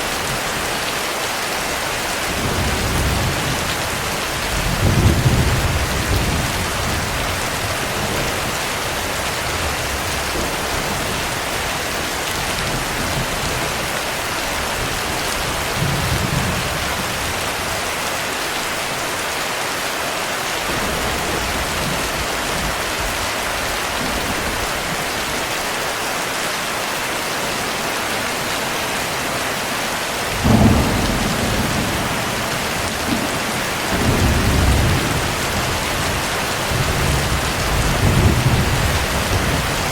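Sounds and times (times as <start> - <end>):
heavy rain: 0.0 - 39.9
thunder rumbling: 20.7 - 25.0, 30.2 - 39.9.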